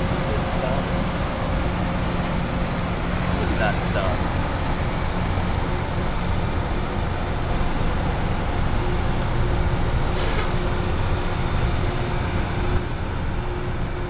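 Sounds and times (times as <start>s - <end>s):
heavy railroad equipment rumbling: 0.0s - 14.0s
air hiss: 10.1s - 10.6s.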